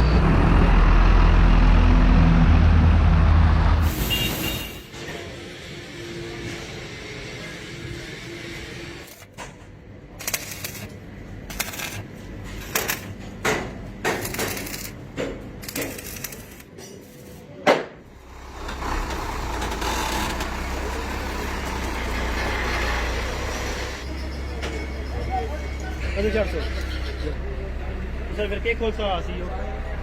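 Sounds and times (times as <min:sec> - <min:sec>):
truck engine droning: 0:00.0 - 0:04.6, 0:18.1 - 0:30.0.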